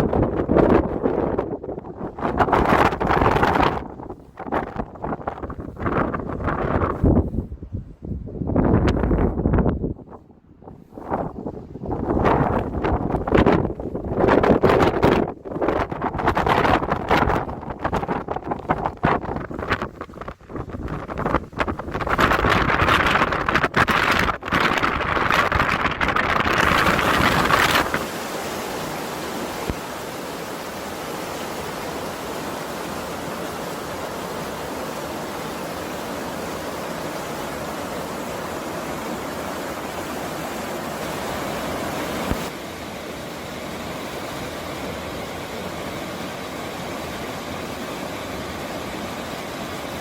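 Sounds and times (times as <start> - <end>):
wind buffeting microphone: 0.0 - 28.2, 41.0 - 42.6
stream rushing: 11.0 - 50.0.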